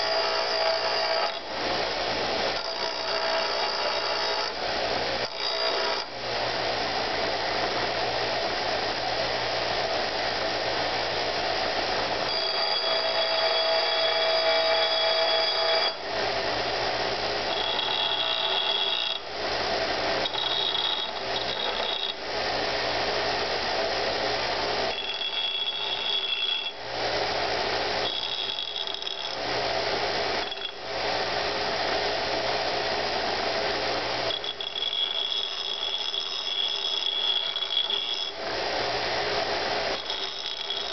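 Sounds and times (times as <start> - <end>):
bench grinder grinding metal: 0.0 - 1.5, 2.2 - 4.6, 5.2 - 6.1, 12.3 - 16.0, 17.4 - 19.2, 19.8 - 22.2, 24.8 - 26.8, 27.9 - 29.6, 30.2 - 30.8, 34.3 - 38.4, 39.7 - 40.9.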